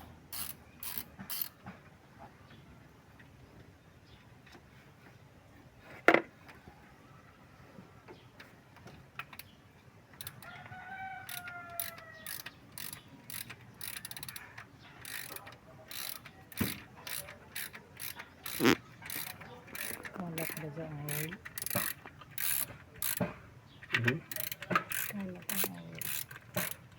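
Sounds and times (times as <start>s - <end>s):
ratchet clicking and rattling: 0.3s - 1.6s, 10.2s - 10.6s, 11.2s - 26.9s
rooster crowing: 10.4s - 12.4s.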